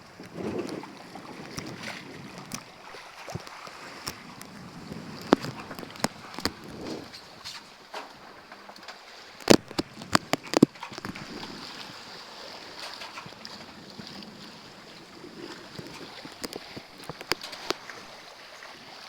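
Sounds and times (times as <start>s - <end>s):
wind noise: 0.0s - 7.6s, 12.7s - 18.2s
water rushing: 0.0s - 19.0s.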